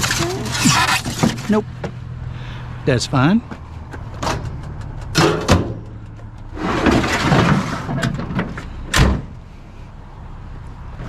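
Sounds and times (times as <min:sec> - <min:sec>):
rattling scrape: 0:00.0 - 0:01.6, 0:06.5 - 0:08.4.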